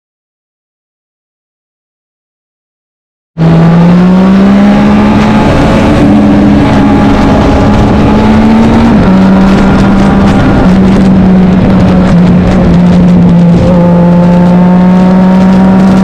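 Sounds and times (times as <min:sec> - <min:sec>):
racing motorcycle engine accelerating: 0:03.4 - 0:16.0.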